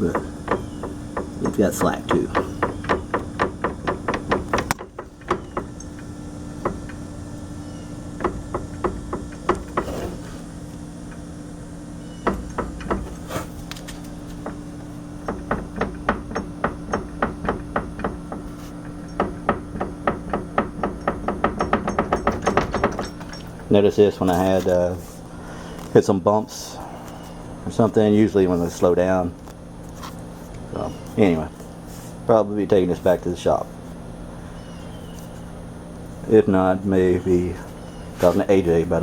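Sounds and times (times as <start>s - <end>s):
suspension arms clunking: 0.0s - 26.0s
steady low hum: 0.0s - 39.0s.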